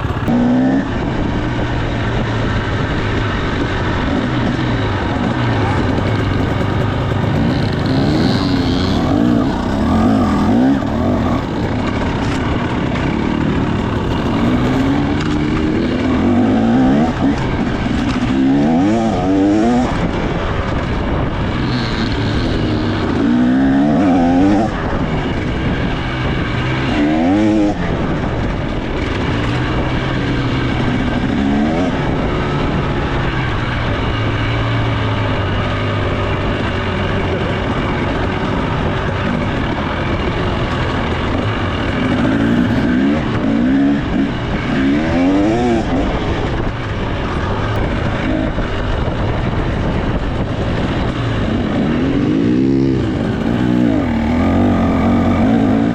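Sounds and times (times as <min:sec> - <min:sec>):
two-stroke engine revving: 0:00.0 - 0:55.9.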